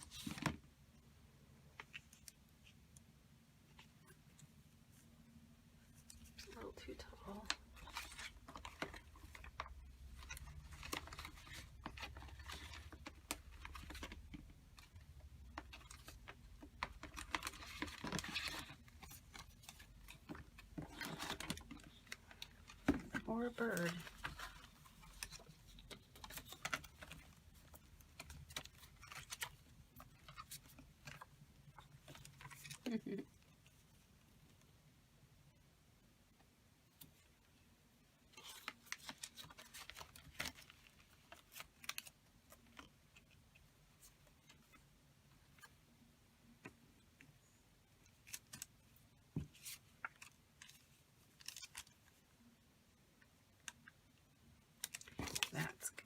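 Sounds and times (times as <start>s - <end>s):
paper rustling: 6.0s - 33.2s, 38.3s - 43.3s
paper pages being shuffled: 38.3s - 42.9s.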